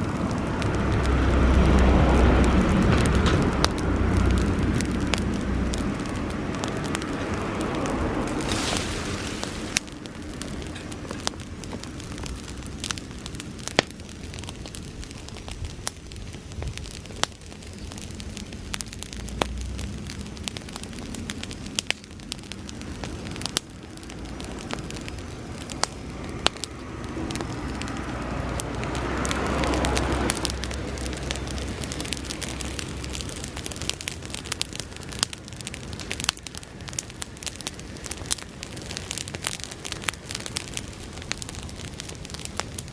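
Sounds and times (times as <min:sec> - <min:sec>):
rushing sound: 0:00.0 - 0:12.7
dry grass fire crackling: 0:00.0 - 0:42.9.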